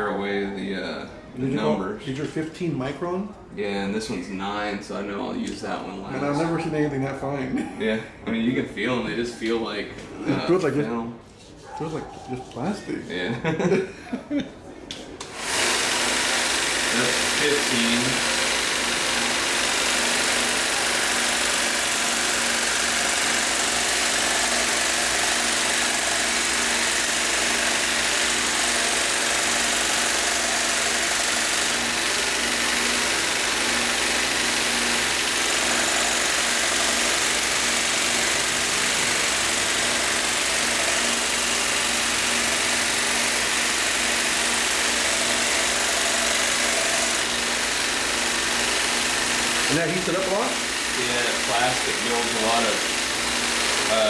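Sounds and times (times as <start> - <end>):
belt sharpener running: 15.2 - 54.0.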